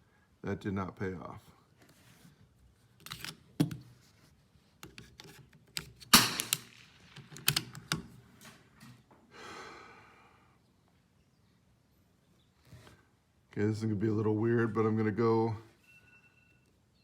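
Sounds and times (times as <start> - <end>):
soft rustle: 1.4 - 3.0
sharp mechanical clicks: 5.7 - 8.2.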